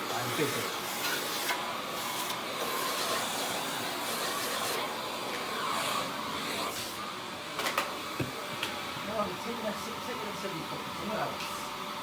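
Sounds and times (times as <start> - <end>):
workshop machine blowing hiss: 0.0 - 7.1.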